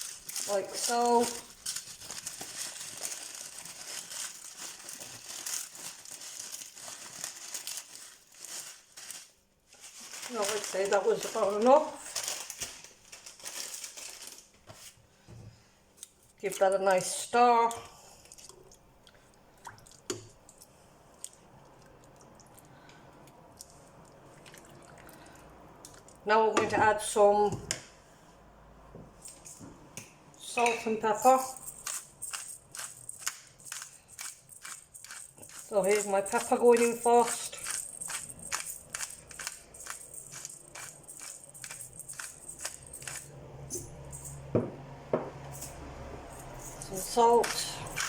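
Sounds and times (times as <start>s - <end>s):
dry noodles crackling and crunching: 0.0s - 14.6s.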